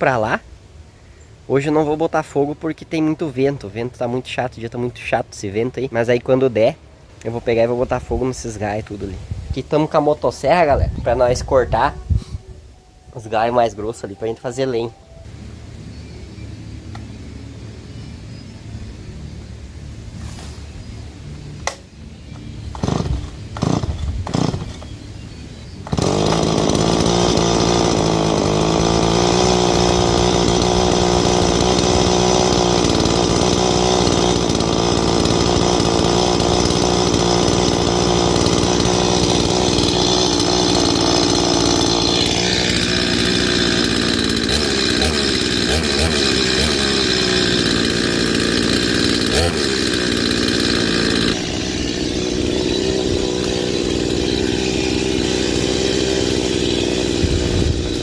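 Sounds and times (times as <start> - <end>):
chainsaw cutting branches: 20.1 - 58.0.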